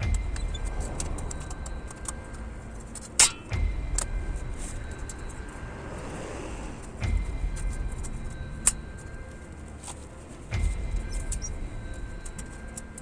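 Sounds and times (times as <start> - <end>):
metal ringing: 0.0 - 6.2
hammer blows on metal: 0.0 - 13.0
low rumble: 0.0 - 13.0.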